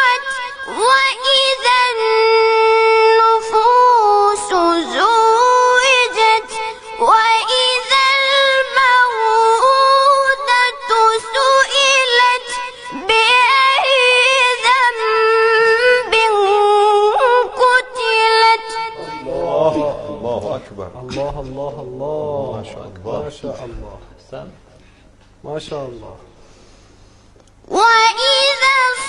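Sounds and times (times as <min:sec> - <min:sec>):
child reciting melodically: 0:00.0 - 0:20.4, 0:27.7 - 0:29.0.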